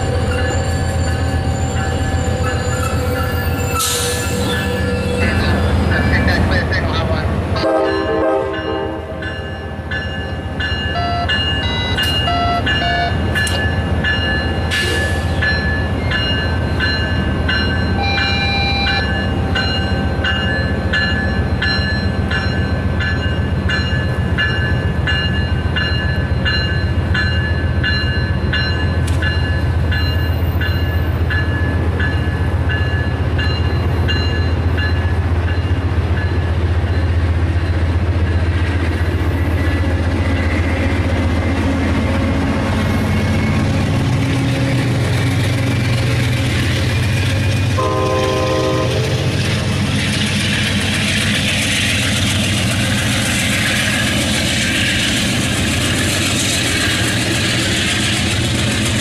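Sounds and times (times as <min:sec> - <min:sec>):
locomotive bell ringing: 0:00.0 - 0:06.7, 0:07.7 - 0:38.5.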